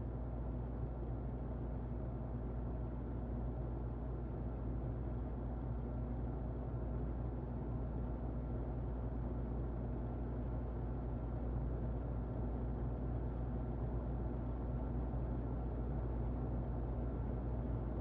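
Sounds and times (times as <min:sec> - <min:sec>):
faint motor hum: 0:00.0 - 0:18.0.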